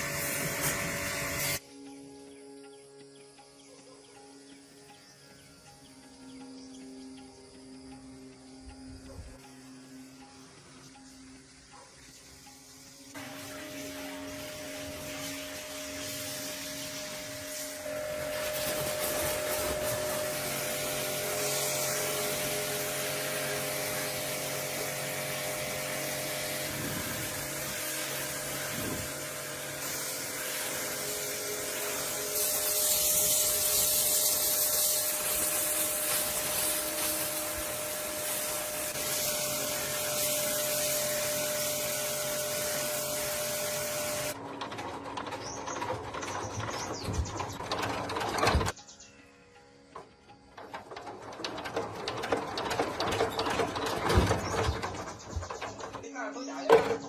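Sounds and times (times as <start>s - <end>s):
small electric motor whining: 0.0s - 3.2s, 4.6s - 44.4s.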